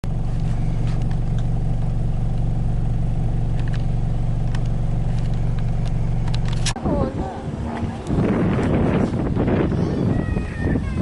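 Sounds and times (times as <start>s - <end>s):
fire engine idling: 0.0s - 6.8s.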